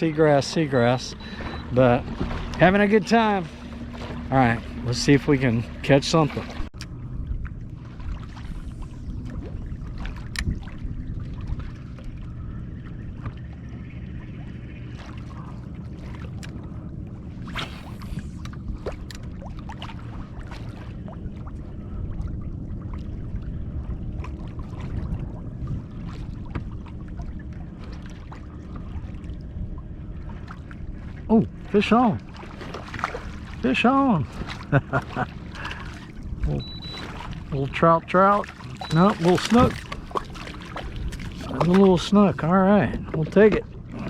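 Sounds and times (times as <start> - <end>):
steady low rumble: 0.0 - 44.0
water lapping around kayak: 0.0 - 44.0
paddle knocks and splashes: 0.4 - 6.7, 24.2 - 29.1, 32.2 - 33.6, 34.2 - 42.1, 42.8 - 44.0.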